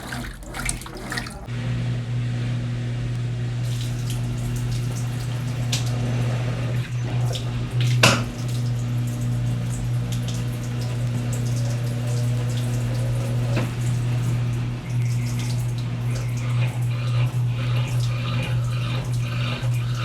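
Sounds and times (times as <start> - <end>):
water sloshing in washing machine drum: 0.0 - 1.5, 3.6 - 20.0
washing machine humming: 0.0 - 20.0.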